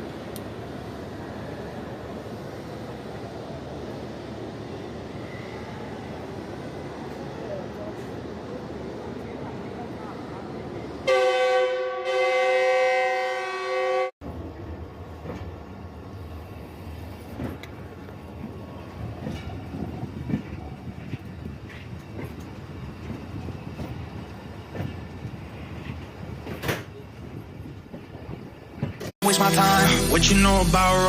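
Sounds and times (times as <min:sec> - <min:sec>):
train rumbling: 0:00.0 - 0:31.0
locomotive air horn: 0:11.0 - 0:14.1.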